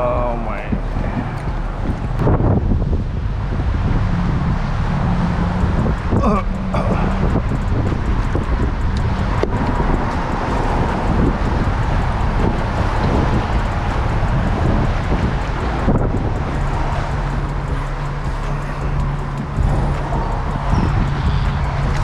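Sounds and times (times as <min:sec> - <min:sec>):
low hum: 0:00.0 - 0:22.0
wind buffeting microphone: 0:00.0 - 0:22.0.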